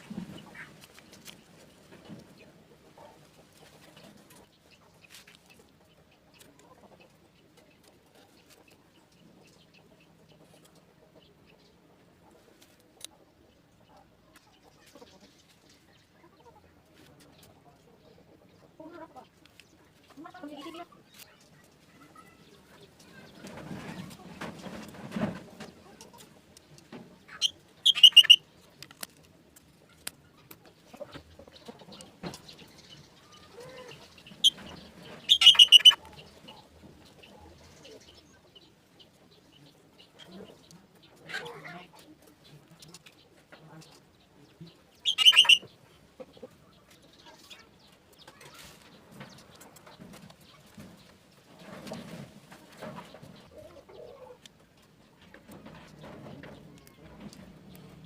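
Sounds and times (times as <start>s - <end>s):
distant chickens clucking: 0.0s - 21.1s, 21.9s - 58.0s
bird chirping sharply: 27.3s - 28.4s, 35.2s - 36.0s, 45.0s - 45.7s.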